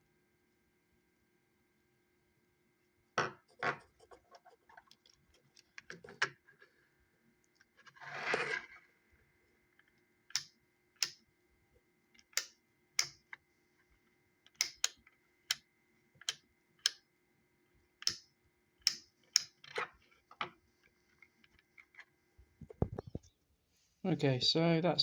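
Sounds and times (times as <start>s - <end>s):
sharp plastic clicks: 12.2s - 13.3s, 14.5s - 15.6s, 18.0s - 19.6s.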